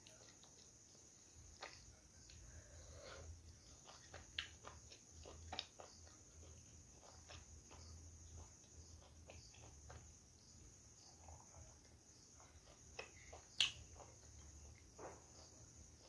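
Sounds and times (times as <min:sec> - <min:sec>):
soft chewing: 0:00.0 - 0:16.0
mouth clicks: 0:13.0 - 0:13.9.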